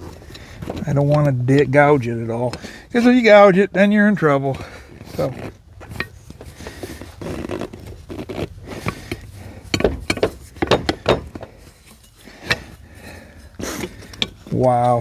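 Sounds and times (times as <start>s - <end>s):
metal tool scraping: 5.0s - 15.0s
sharp metal clicks and knocks: 8.3s - 12.8s, 13.6s - 15.0s.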